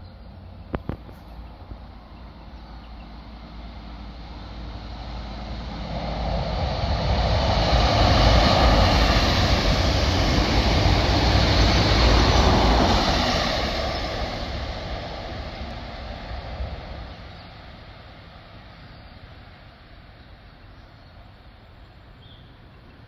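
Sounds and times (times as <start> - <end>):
diesel train engine: 0.0 - 23.0
train wheels on rails: 3.3 - 19.7.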